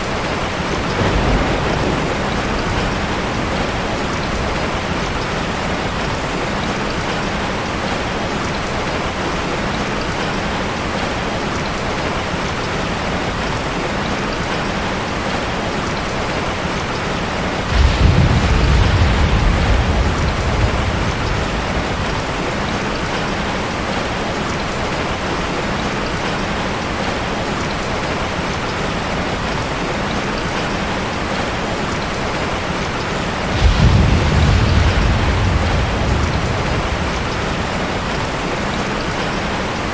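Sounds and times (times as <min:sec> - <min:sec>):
thunder rumbling: 0:00.0 - 0:08.0, 0:16.7 - 0:25.8, 0:31.2 - 0:39.9
heavy rain: 0:00.0 - 0:39.9.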